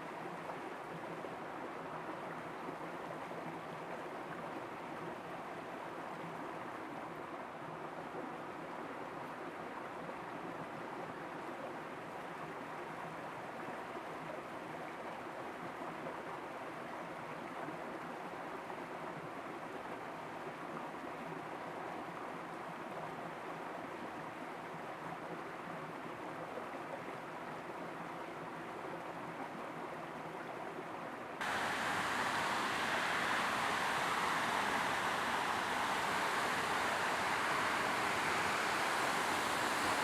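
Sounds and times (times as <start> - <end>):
running water rushing: 31.4 - 40.0.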